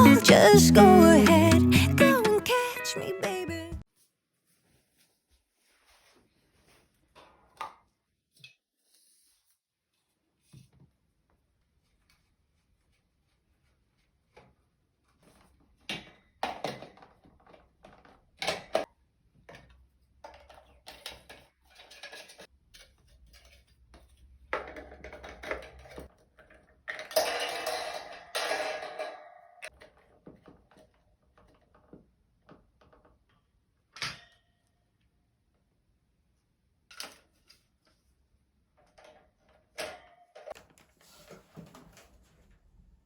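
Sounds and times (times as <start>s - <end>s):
rustling and scraping: 4.0s - 7.6s, 40.6s - 42.8s
objects knocking and clicking: 24.0s - 33.2s.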